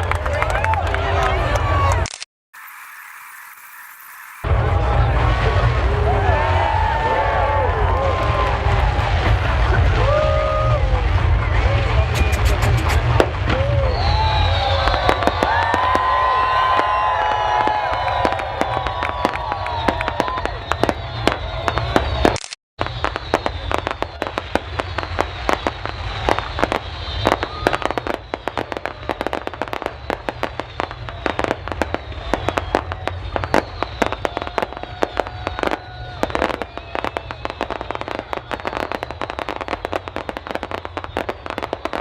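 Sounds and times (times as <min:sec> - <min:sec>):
faint crowd voices: 0:00.0 - 0:02.2, 0:04.4 - 0:42.0
fireworks crackling and banging: 0:00.0 - 0:42.0
low rumble: 0:04.4 - 0:17.1.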